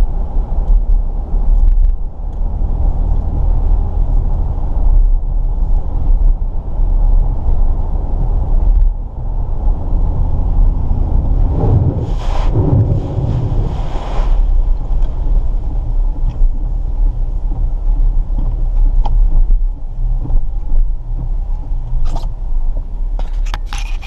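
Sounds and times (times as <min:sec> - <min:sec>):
car engine rumbling: 0:00.0 - 0:24.0
rush of noise: 0:09.9 - 0:15.6.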